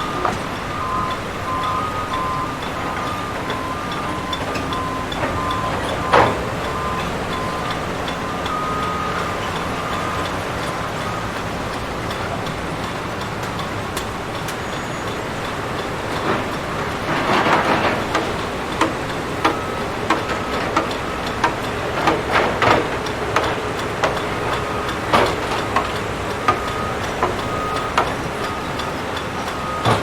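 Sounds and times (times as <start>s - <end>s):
short faint beeps: 0.0s - 10.3s
demolition machine engine running: 0.0s - 30.0s.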